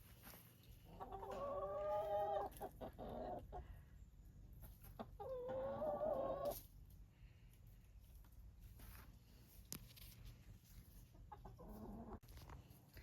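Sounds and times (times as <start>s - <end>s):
chicken clucking: 0.7s - 6.8s, 10.8s - 12.2s
chicken long calls: 0.9s - 3.7s, 5.0s - 6.6s.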